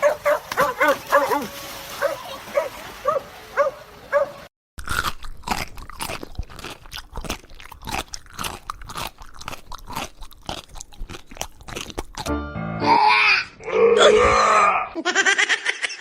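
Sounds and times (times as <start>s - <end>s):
animal crunching hard food: 4.8s - 12.3s.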